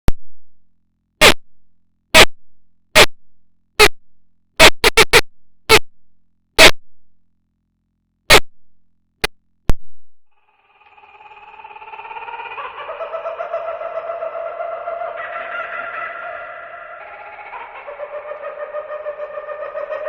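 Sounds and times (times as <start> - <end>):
short sharp noise bursts: 1.2 - 1.4, 2.1 - 2.4, 3.0 - 3.2, 4.6 - 5.9, 6.6 - 7.0, 8.3 - 8.7.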